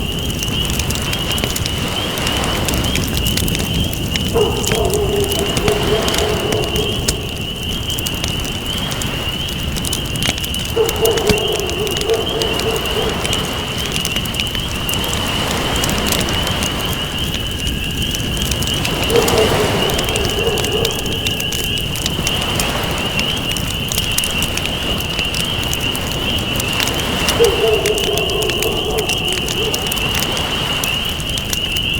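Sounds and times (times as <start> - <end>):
campfire crackling and popping: 0.0 - 31.9
surf rushing: 1.0 - 17.2, 18.4 - 23.5, 24.2 - 31.5
dove cooing: 4.2 - 9.0, 10.5 - 16.8, 18.5 - 22.9, 24.8 - 31.2.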